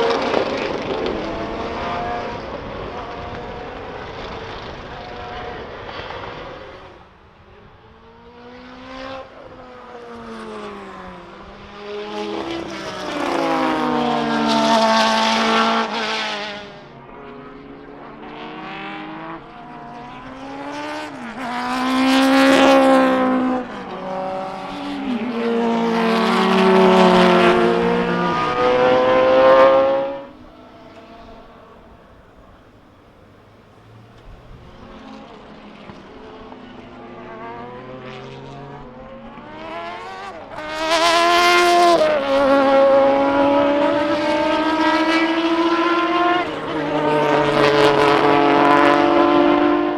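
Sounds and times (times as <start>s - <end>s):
racing cars passing: 0.0s - 49.9s.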